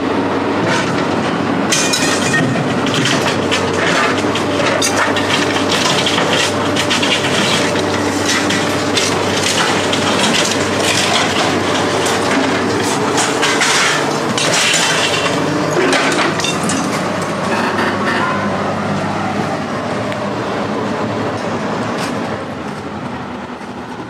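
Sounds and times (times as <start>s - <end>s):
heavy engine running: 0.0s - 24.0s
metal clattering and scraping: 0.6s - 18.6s.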